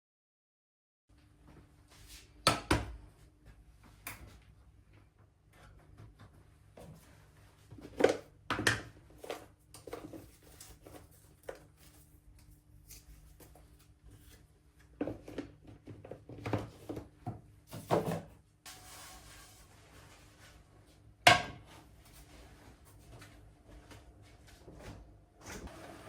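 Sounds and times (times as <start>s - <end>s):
kitchen items knocking and clinking: 15.0s - 18.4s, 21.3s - 21.7s.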